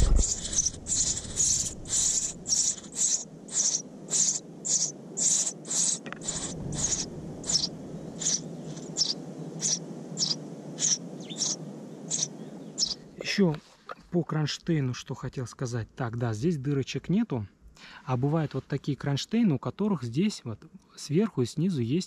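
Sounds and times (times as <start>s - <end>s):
small bird calling: 0.0s - 13.4s
low background noise: 0.0s - 22.0s.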